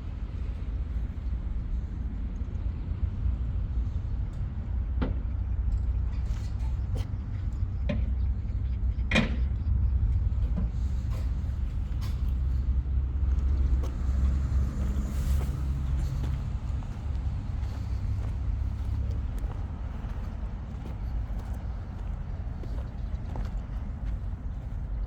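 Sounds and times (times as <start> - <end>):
engine running: 10.1 - 25.0.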